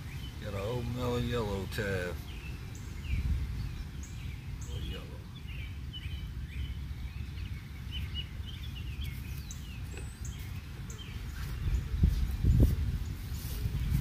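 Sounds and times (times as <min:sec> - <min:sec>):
songbirds chirping: 0:00.0 - 0:14.0
wind rumble on microphone: 0:02.2 - 0:14.0.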